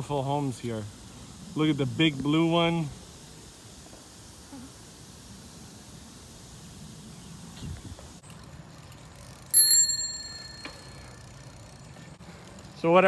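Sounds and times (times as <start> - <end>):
bicycle bell ringing: 9.5 - 11.8.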